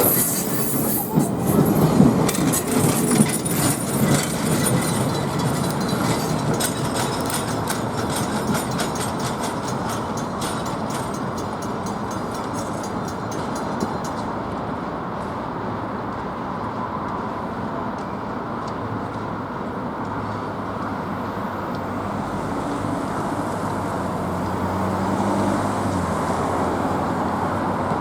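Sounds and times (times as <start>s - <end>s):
wheels clicking over rail joints: 0.0s - 15.4s
train rumble: 0.0s - 28.0s.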